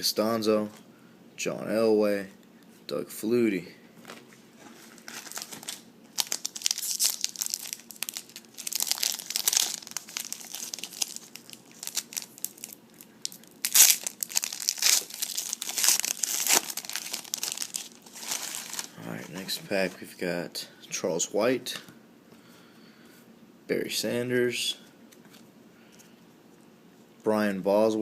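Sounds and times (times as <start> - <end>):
wrapper tearing and crinkling: 4.9 - 19.0.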